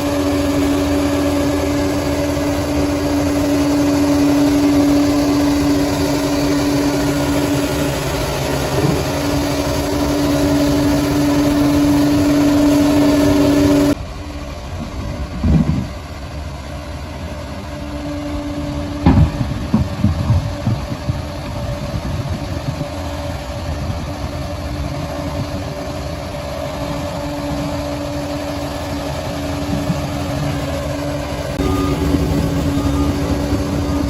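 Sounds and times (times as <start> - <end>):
diesel engine running: 0.0 - 34.0
loud knocks: 19.0 - 21.2.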